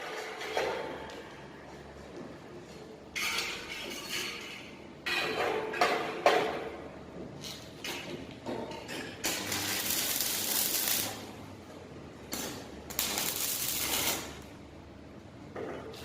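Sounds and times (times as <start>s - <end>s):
welding arc crackling: 9.2s - 11.4s, 12.3s - 14.5s.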